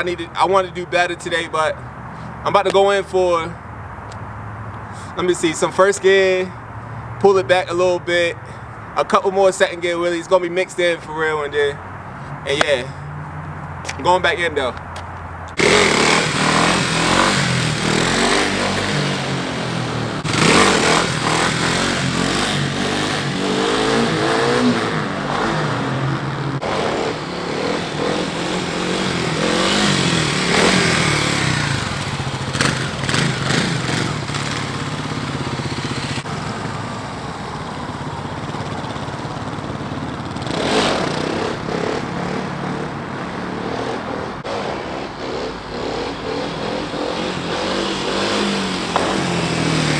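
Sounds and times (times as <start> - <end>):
motorcycle engine revving: 11.4 - 49.9.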